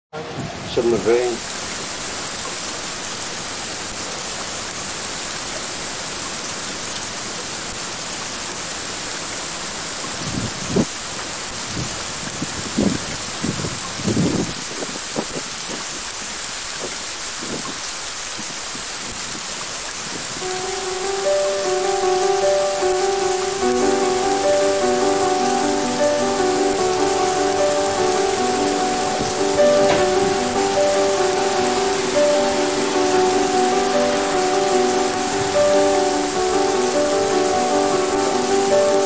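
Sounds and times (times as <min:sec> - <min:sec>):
rain falling on leaves: 0:00.2 - 0:39.0
low thuds: 0:29.2 - 0:31.2.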